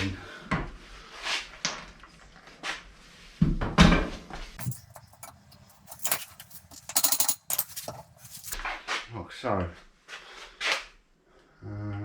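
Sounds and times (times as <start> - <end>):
metal tools clunking and clinking: 4.6 - 8.6.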